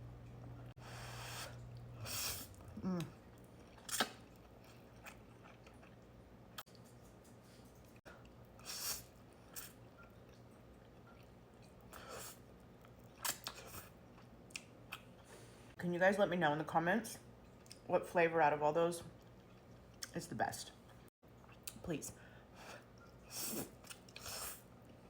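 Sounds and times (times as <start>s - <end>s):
person chewing: 1.5s - 6.7s, 8.2s - 15.1s, 19.2s - 20.1s.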